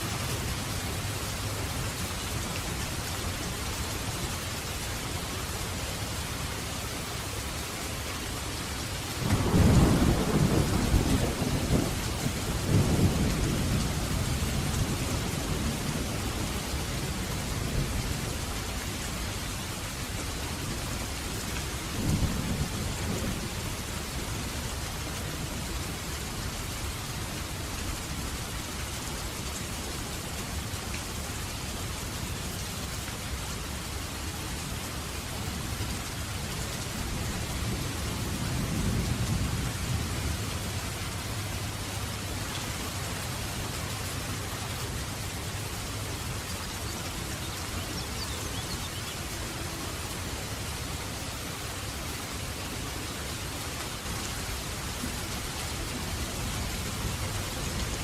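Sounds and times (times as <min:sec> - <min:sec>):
steady rain falling: 0:00.0 - 0:58.0
thunder clap and rumble: 0:09.2 - 0:18.2.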